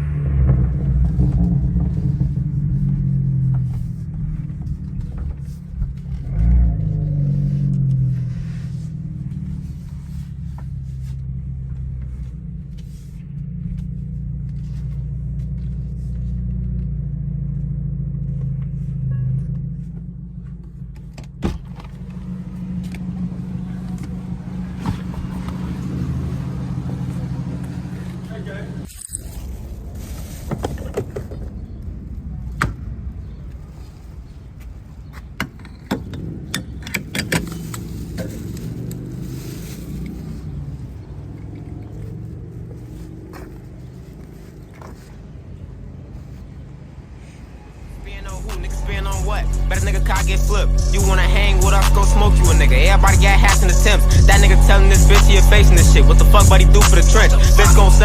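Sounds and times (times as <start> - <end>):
turbocharged car engine: 0.0 - 30.4, 35.2 - 58.0.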